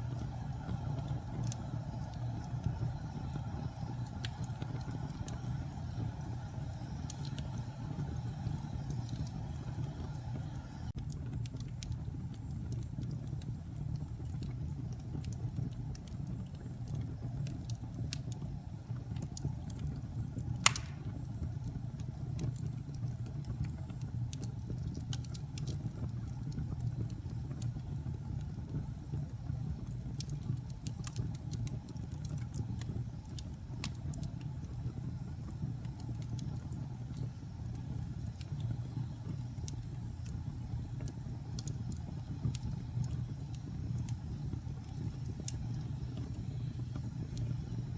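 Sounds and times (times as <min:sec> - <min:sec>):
wood fire crackling: 0:00.0 - 0:47.9
loud pop of fire: 0:20.6 - 0:21.3.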